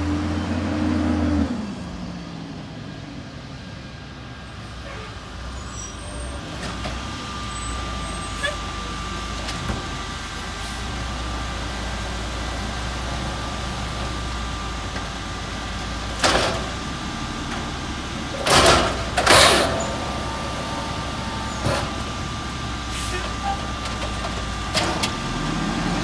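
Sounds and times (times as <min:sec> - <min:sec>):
garbage truck engine running: 0:00.0 - 0:26.0
clatter and hiss: 0:15.8 - 0:16.8, 0:17.4 - 0:20.8.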